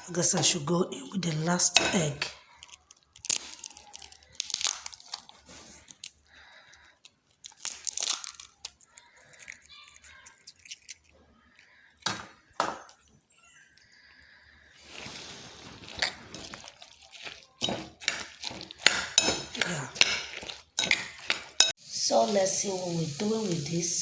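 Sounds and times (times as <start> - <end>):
egg cracked and mixed in bowl: 1.2 - 5.3, 7.4 - 13.0, 15.8 - 21.8.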